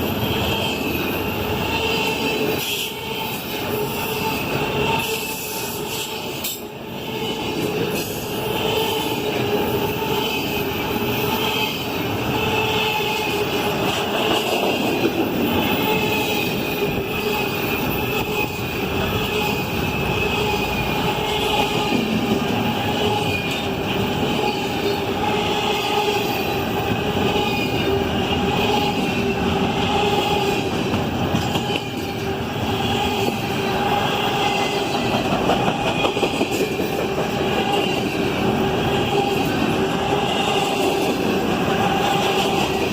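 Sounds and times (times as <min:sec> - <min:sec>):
train wheels squealing: 0:00.0 - 0:30.7, 0:31.3 - 0:42.9.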